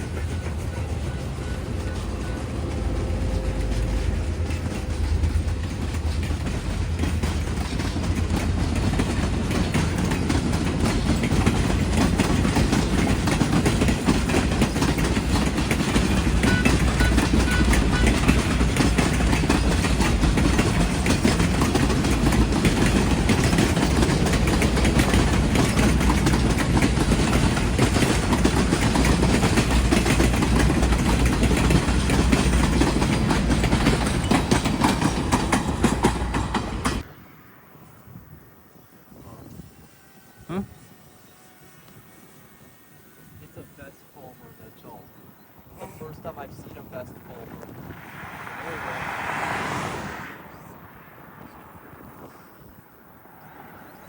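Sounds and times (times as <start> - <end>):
train wheels clattering over rail joints: 0.0 - 37.2
low train rumble: 0.0 - 54.0.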